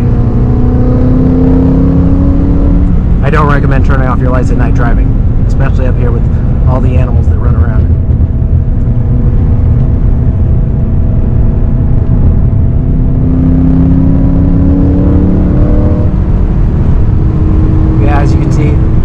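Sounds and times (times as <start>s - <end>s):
car engine revving from inside cabin: 0.0s - 3.2s, 7.8s - 19.0s
low road rumble: 0.0s - 19.0s.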